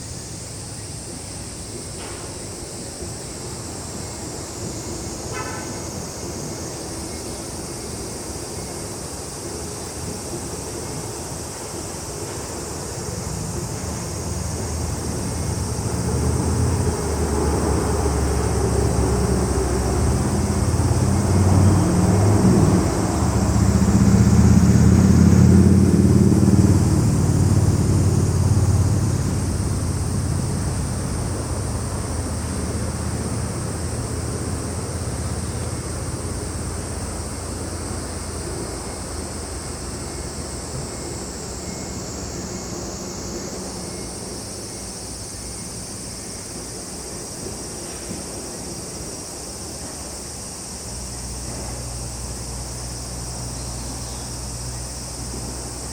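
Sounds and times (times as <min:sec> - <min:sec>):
insects chorus: 0:00.0 - 0:55.9
vehicle engine passing: 0:13.3 - 0:38.4.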